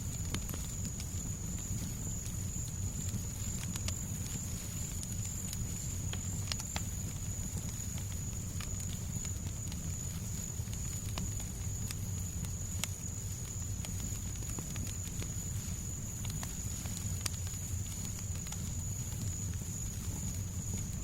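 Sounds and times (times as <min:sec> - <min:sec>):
fire crackling and popping: 0:00.0 - 0:21.0.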